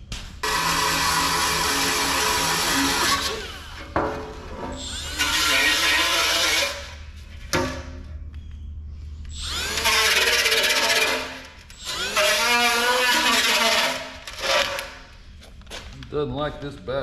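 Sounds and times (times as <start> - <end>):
cordless power tool motor: 9.3 - 15.0.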